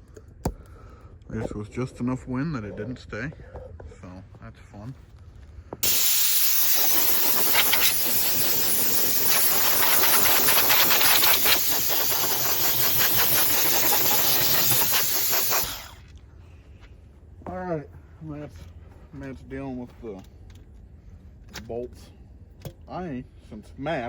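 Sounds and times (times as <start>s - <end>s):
rushing air hiss with crackle: 5.8s - 16.0s.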